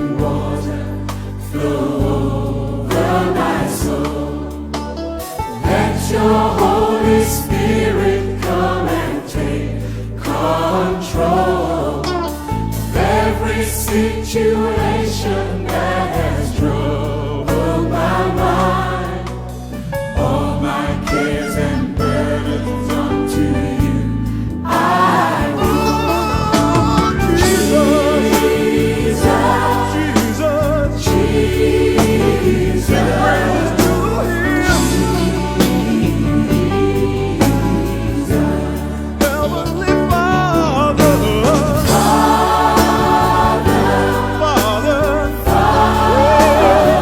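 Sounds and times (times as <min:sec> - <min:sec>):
gospel choir singing: 0:00.0 - 0:47.0
bass and beat: 0:10.3 - 0:47.0
person singing with vibrato: 0:20.9 - 0:22.8, 0:25.0 - 0:31.0.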